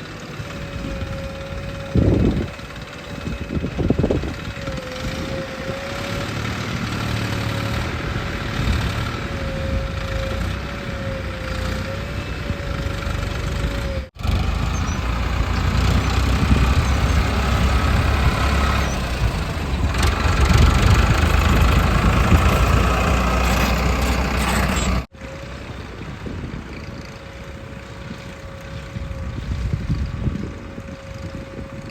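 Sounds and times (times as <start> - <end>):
heavy machinery diesel engines: 0.0 - 31.9
wavering whine: 24.4 - 31.9.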